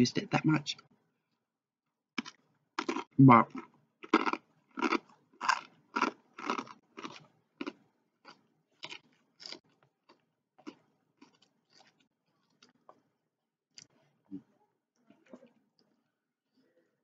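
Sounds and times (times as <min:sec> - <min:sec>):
person chewing crunchy food: 0:02.2 - 0:13.1.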